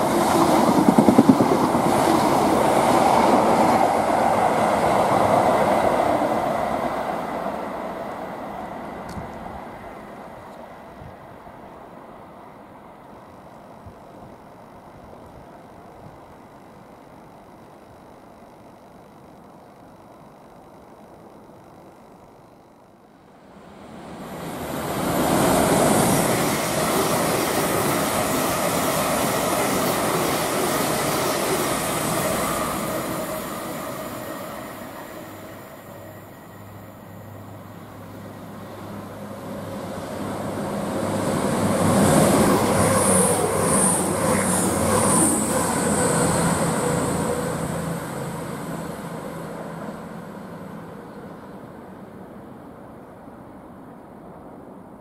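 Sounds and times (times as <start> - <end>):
passenger trains passing: 0.0 - 18.2, 23.0 - 55.0
wheel-on-rail hiss: 23.5 - 52.0.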